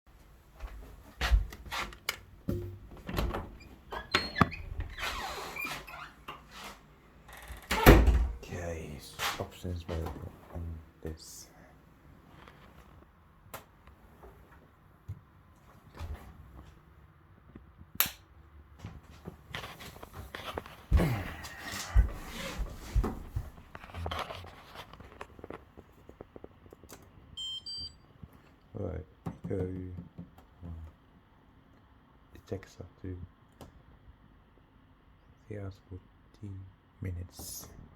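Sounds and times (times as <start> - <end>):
short electronic beep: 27.4 - 28.0.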